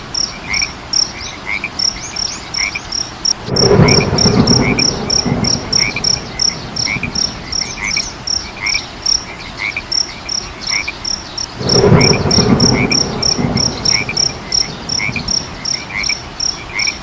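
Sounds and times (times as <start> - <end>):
frogs and insects calling: 0.0 - 17.0
distant thunder rumbling: 3.3 - 8.8, 11.6 - 17.0.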